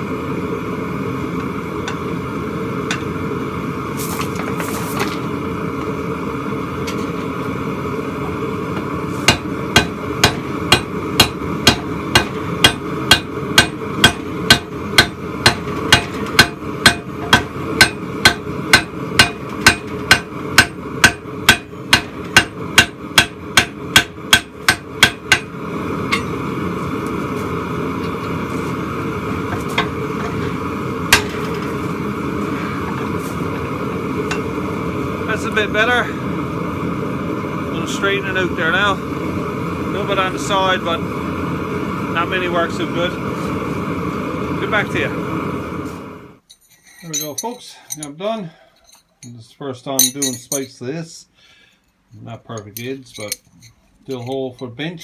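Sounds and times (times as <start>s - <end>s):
hammer striking steel on anvil: 9.3s - 26.4s, 31.1s - 31.7s, 50.0s - 50.7s.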